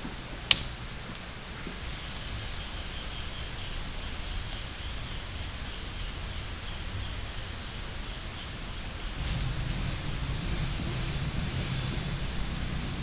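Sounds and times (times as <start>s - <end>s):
outdoor hiss: 0.0s - 13.0s
small birds chirping: 0.0s - 13.0s
low rumble: 8.2s - 13.0s.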